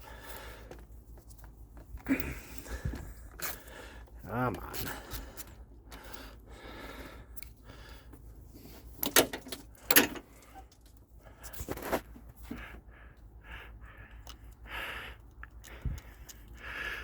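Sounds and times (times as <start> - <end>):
metal tool clanking and rattling: 9.0 - 10.8.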